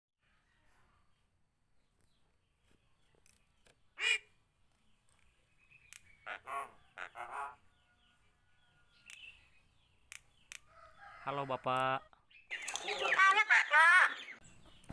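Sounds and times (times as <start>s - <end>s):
myna calling: 5.9s - 7.7s.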